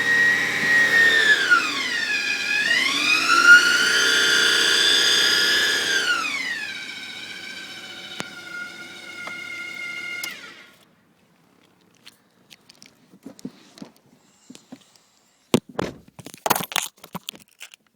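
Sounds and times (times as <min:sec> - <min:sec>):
transmission whining: 0:00.0 - 0:10.8
faint clicks and knocks: 0:11.2 - 0:15.0.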